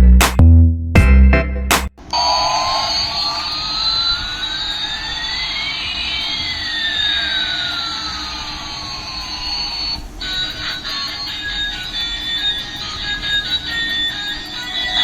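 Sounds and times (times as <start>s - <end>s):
music: 0.0s - 1.9s, 10.0s - 15.0s
toy jet engine sound effect: 2.1s - 15.0s.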